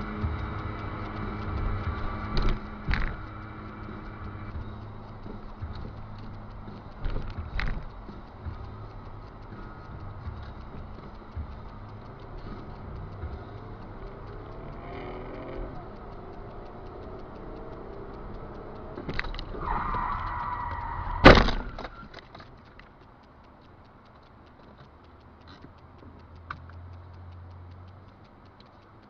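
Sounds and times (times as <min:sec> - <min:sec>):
faint ticking: 0:00.0 - 0:29.0
high squeal: 0:19.6 - 0:21.3.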